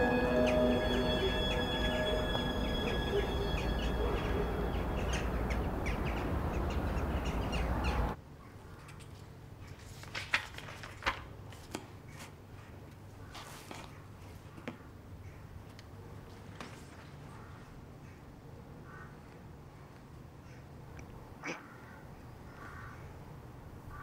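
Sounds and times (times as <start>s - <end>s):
birds chirping and calling: 0.0s - 8.2s.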